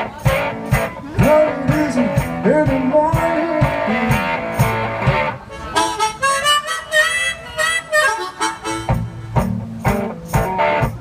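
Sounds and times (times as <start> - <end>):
bass and kick drum beat: 0.0 - 5.4, 8.8 - 11.0
harmonica riff: 3.6 - 10.3.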